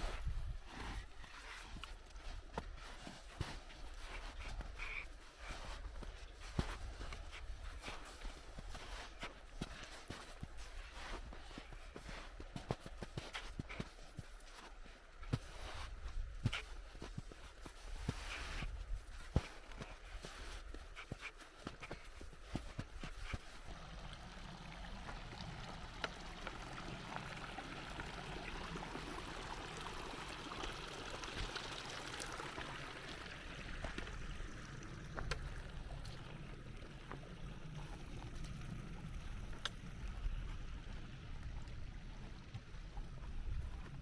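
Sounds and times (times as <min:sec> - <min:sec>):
flowing water rushing: 0:22.5 - 0:44.0.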